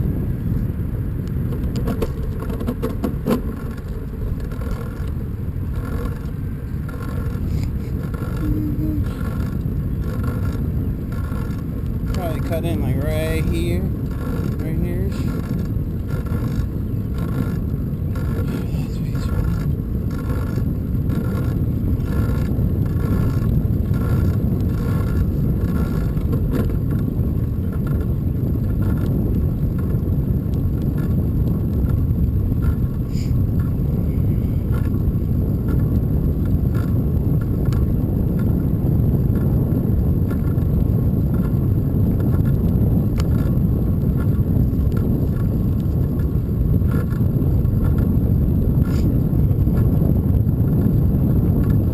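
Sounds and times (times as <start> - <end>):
bicycle tyres on road: 0.0 - 51.9
wind on microphone: 0.0 - 51.9
faint regular ticking: 3.3 - 27.0.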